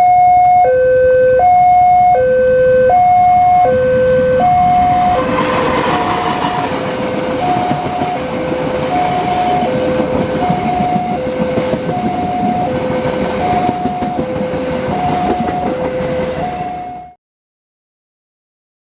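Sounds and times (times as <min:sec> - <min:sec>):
two-tone crossing warning alarm: 0:00.0 - 0:17.2
train wheels clattering on rails: 0:04.1 - 0:17.0.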